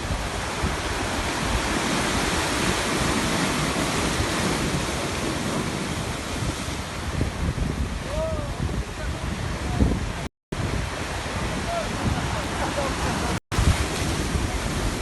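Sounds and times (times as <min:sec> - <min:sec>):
sea waves breaking on shore: 0:00.0 - 0:15.0
wind rumbling on microphone: 0:00.0 - 0:15.0.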